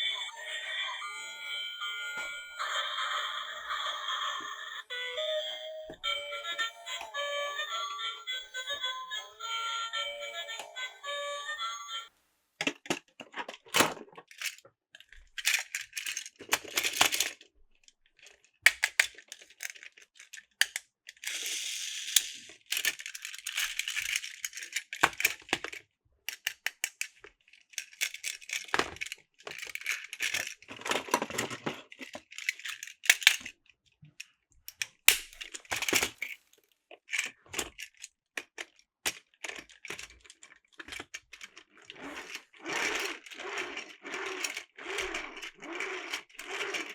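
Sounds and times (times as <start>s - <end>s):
plastic toy parts clicking and rattling: 12.6s - 46.9s.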